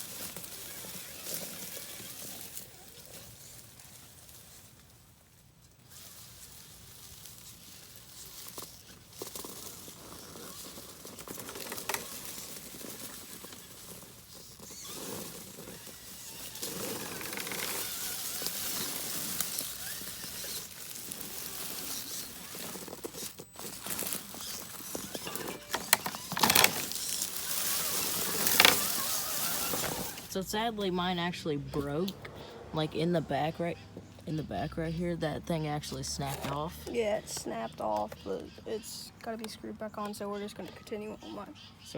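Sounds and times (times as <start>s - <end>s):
rc car crunching over rocks: 0.0s - 41.9s.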